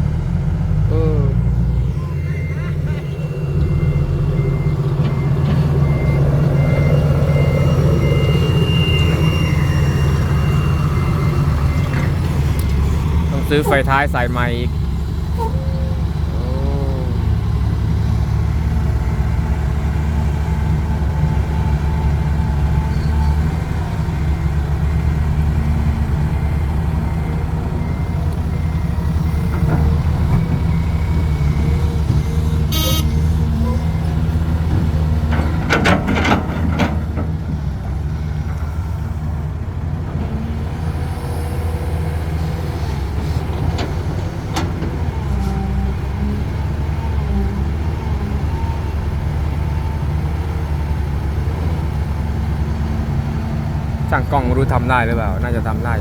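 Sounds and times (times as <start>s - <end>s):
diesel engine running: 0.0s - 56.0s
reversing beeper: 0.8s - 14.7s, 32.2s - 33.8s.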